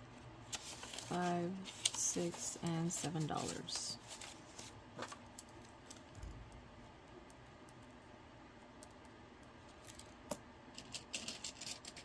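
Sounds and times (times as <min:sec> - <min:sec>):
paper cash and envelopes handled: 0:00.4 - 0:06.1.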